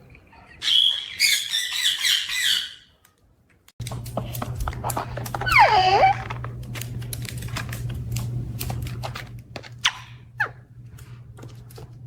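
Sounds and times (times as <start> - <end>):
steady low hum: 3.8 - 12.0
quick falling squeaks: 5.4 - 6.4.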